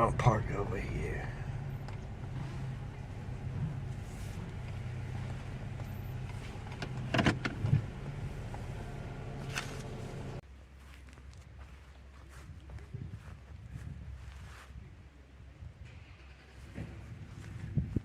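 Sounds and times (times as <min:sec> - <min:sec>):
car engine humming: 0:00.0 - 0:10.4
short clunks: 0:01.8 - 0:08.6.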